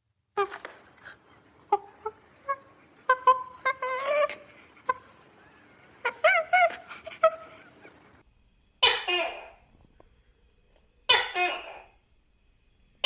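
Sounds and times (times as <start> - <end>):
farm animal calling: 0.4 - 8.0.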